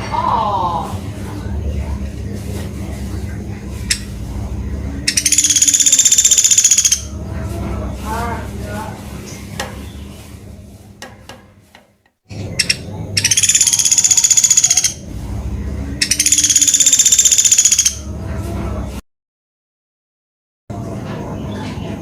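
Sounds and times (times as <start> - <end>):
low background rumble: 0.0 - 6.4, 7.0 - 11.0, 14.9 - 16.2
woodpecker rattling trills: 5.0 - 7.1, 12.4 - 15.0, 16.0 - 18.0.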